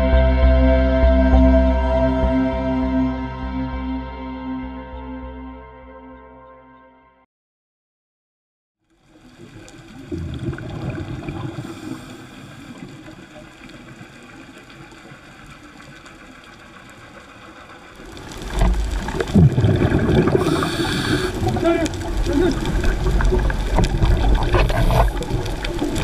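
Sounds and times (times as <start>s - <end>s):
rushing water: 8.9s - 26.0s
regulator breathing and bubbles: 9.0s - 26.0s.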